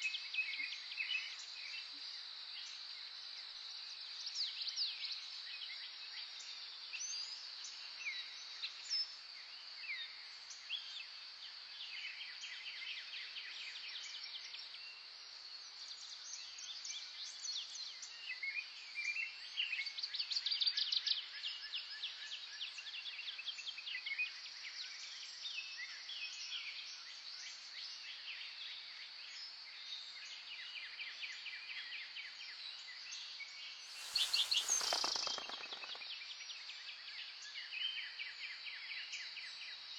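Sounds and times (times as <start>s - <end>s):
burst of rapid clicks: 33.9s - 36.1s
high insect trill: 33.9s - 36.1s.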